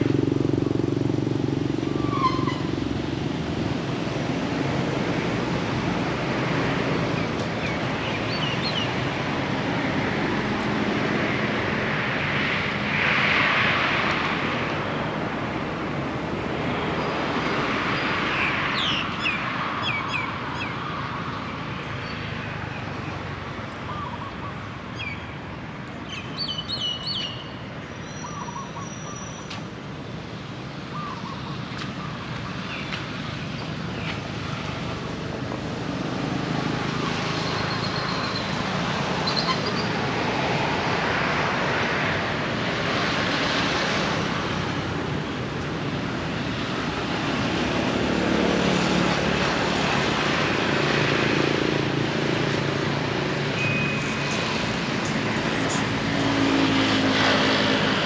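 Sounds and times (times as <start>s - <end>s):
road traffic: 0.0s - 58.0s
birds chirping: 7.1s - 9.2s, 26.0s - 29.6s.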